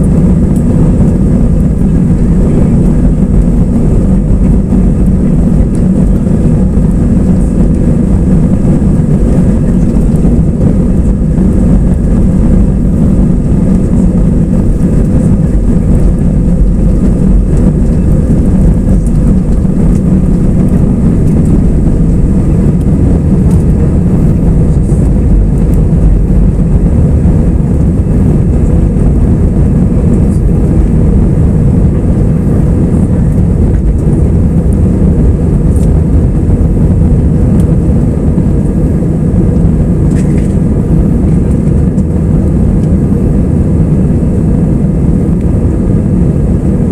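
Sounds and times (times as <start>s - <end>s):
jet engine cabin rumble: 0.0s - 46.9s.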